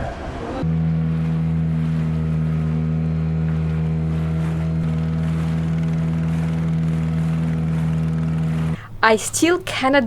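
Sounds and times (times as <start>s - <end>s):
engine running with low hum: 0.0s - 9.0s.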